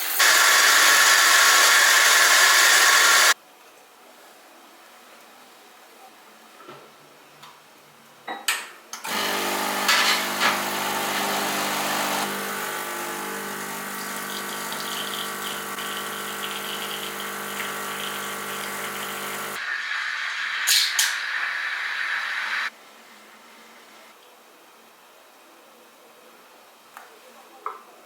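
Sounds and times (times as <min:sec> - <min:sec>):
small appliance motor humming: 0:09.1 - 0:19.6.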